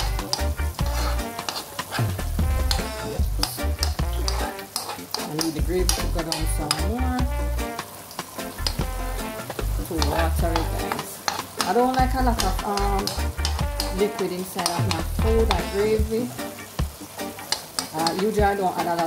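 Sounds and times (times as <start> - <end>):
background music with bass: 0.0 - 1.4, 2.0 - 4.7, 5.5 - 7.8, 8.4 - 11.1, 12.0 - 14.1, 14.8 - 17.2
food sizzling in a pot: 0.0 - 19.0
spoon knocking against pot: 10.0 - 14.0.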